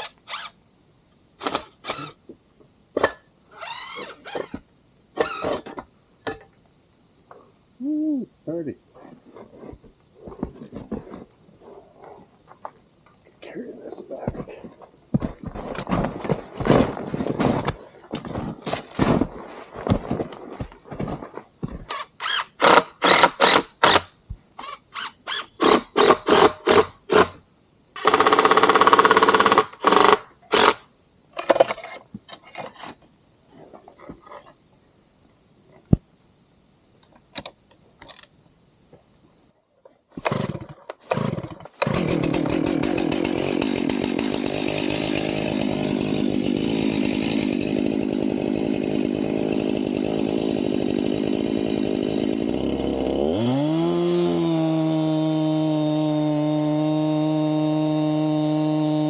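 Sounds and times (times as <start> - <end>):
chainsaw pull-starting: 21.9 - 27.3, 28.0 - 30.8, 40.2 - 59.0
chainsaw running steadily: 40.2 - 59.0.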